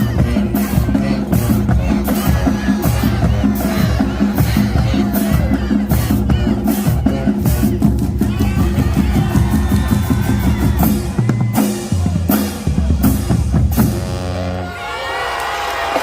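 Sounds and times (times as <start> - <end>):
marching band playing: 0.0 - 16.0
crowd shouting and whooping: 8.2 - 12.3, 14.6 - 16.0.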